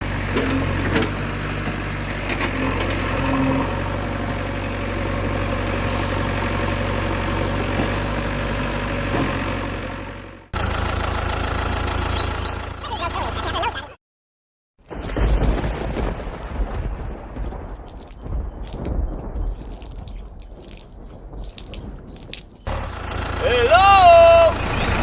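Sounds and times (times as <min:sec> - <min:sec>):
engine idling: 0:00.0 - 0:13.9, 0:22.6 - 0:25.0.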